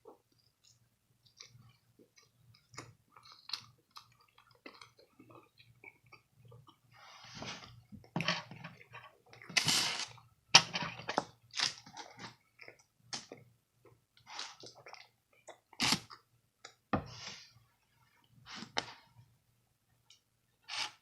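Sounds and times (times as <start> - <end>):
person chewing crunchy food: 0.4 - 6.9.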